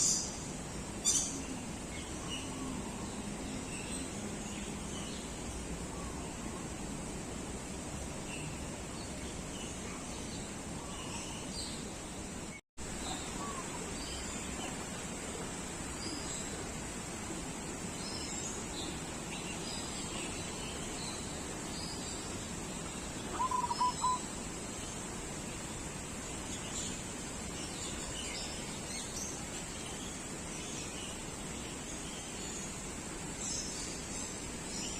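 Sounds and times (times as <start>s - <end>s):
background hiss: 0.0s - 34.9s
birds chirping and whistling: 23.4s - 24.2s.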